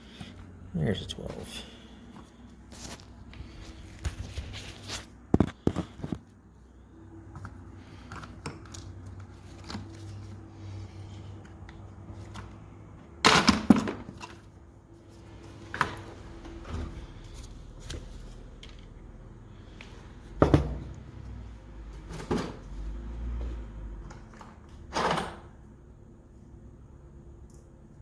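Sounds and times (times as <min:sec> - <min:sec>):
toolbox drawers opening and closing: 0:13.2 - 0:14.4, 0:22.0 - 0:22.8, 0:24.0 - 0:25.6.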